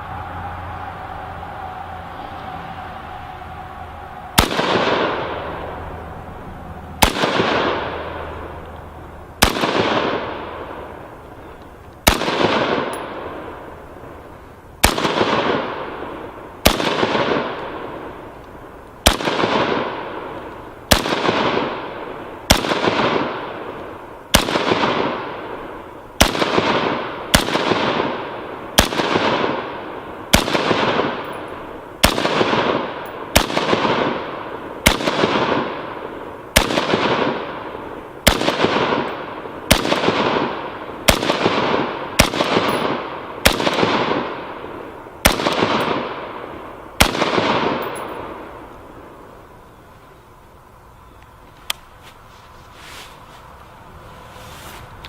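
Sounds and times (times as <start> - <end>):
rifle shots with echo: 4.4 - 5.9, 7.0 - 8.6, 9.4 - 11.2, 12.0 - 13.8, 14.8 - 18.3, 19.0 - 49.3.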